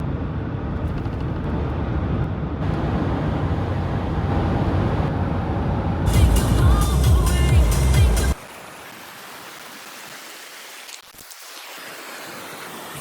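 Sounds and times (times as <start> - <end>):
vehicle engine and road rumble: 0.0 - 8.4
music: 6.1 - 8.4.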